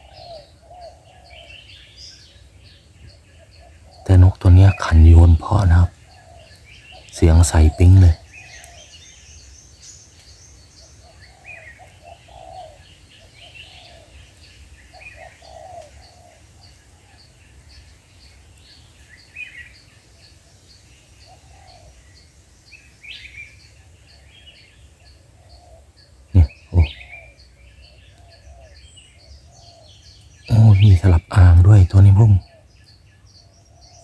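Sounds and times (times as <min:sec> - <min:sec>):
doves cooing: 0:03.6 - 0:08.8, 0:11.0 - 0:14.2, 0:14.9 - 0:16.8, 0:26.4 - 0:27.3, 0:30.5 - 0:32.4
bird chirps: 0:26.4 - 0:34.0
high ticking bird call: 0:30.5 - 0:32.4.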